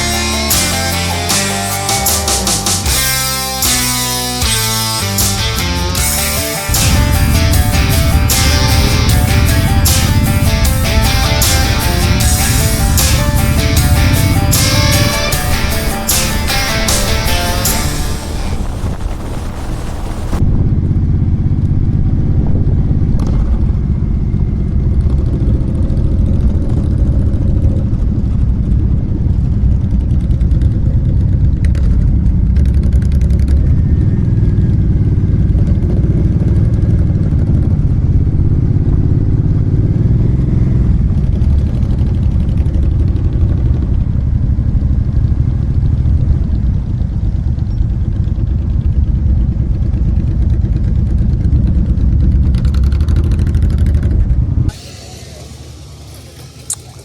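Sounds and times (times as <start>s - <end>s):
background music: 0.0s - 19.4s
motorcycle engine rumbling: 0.0s - 57.0s.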